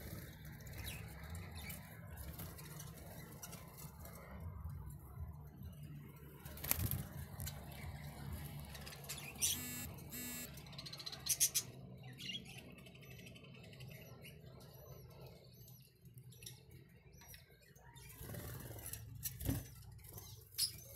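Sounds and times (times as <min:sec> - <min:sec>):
budgies chirping: 0:09.0 - 0:12.7.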